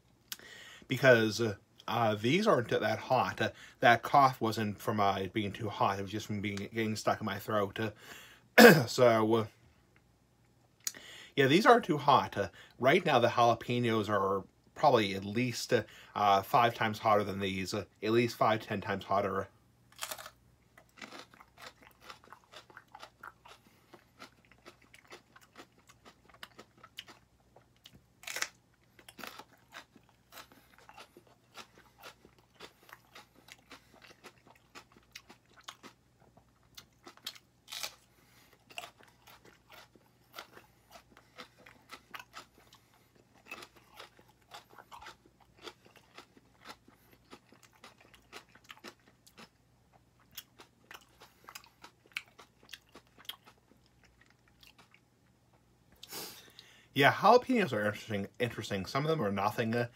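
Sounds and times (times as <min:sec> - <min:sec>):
crisp chewing crunches: 0:19.9 - 0:55.0.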